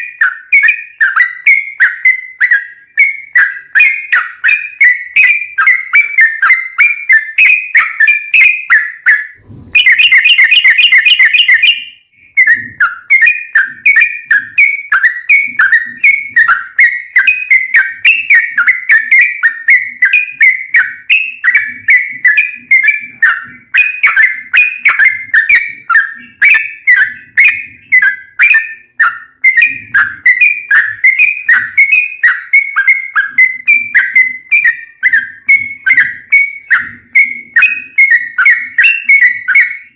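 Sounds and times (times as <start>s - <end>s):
bird chirping song: 0.0s - 39.9s
bird rattling trill: 9.4s - 39.8s.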